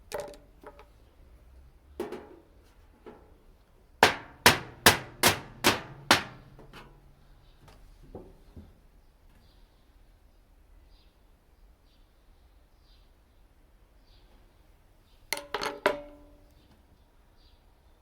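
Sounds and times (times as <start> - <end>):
hammer striking metal tin: 4.0 - 6.8, 15.4 - 16.3.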